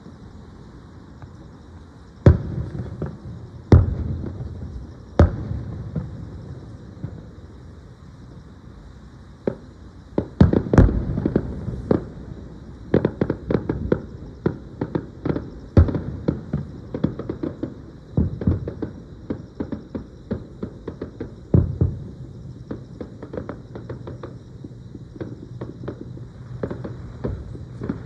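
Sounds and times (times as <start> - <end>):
fireworks booming: 2.2 - 8.4, 9.4 - 28.0.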